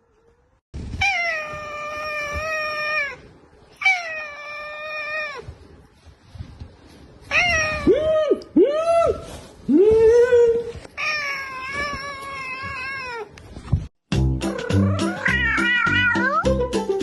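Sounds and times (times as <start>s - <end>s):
cat meowing: 1.0s - 5.5s, 7.2s - 8.0s, 11.0s - 13.4s, 14.6s - 16.5s.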